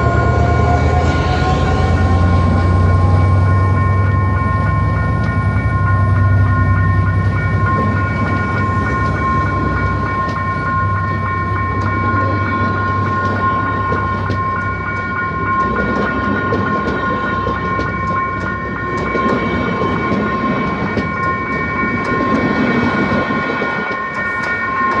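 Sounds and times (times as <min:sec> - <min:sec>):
train rumbling past: 0:00.0 - 0:25.0
wheels clicking over rail joints: 0:11.7 - 0:25.0.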